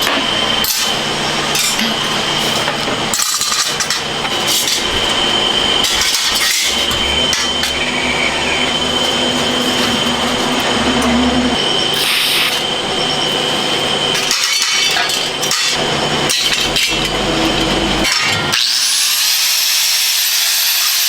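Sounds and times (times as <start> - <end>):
machine whine and hum: 0.0 - 21.0.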